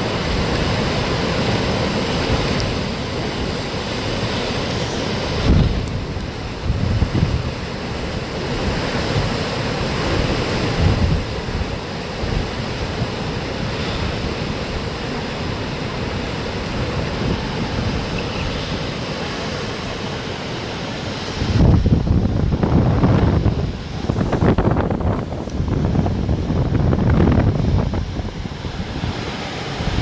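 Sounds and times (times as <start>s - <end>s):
rain: 0.0s - 30.0s
wind gusts buffeting microphone: 0.0s - 30.0s
wind rushing: 21.0s - 30.0s.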